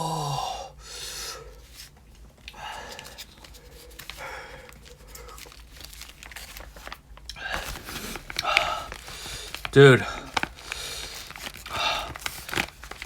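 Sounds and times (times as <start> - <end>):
person panting heavily: 0.0 - 1.6, 2.6 - 5.6, 7.4 - 12.4
foil packaging crinkling: 1.6 - 13.0.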